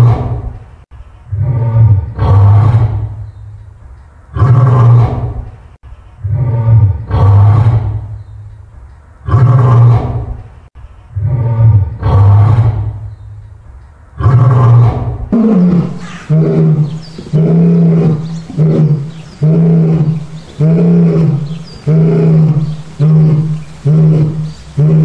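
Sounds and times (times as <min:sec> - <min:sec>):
lion roaring: 0:01.3 - 0:03.2, 0:04.4 - 0:05.4, 0:06.2 - 0:08.1, 0:09.3 - 0:10.4, 0:11.2 - 0:13.0, 0:14.2 - 0:25.0
lion grunting calls: 0:14.2 - 0:25.0.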